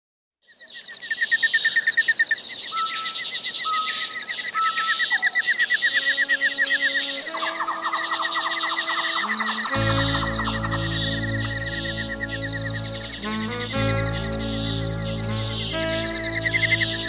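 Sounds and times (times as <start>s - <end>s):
birdsong chirps and trills: 2.6s - 17.0s
soft held musical notes: 9.1s - 17.0s.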